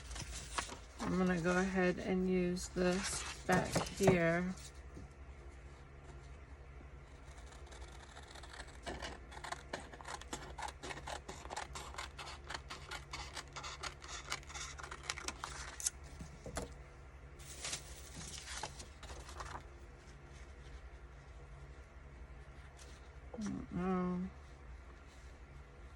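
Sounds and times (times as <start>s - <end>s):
paper rustling: 0.0s - 1.8s, 2.8s - 4.8s, 17.4s - 20.9s
scissors snipping paper: 7.3s - 15.9s.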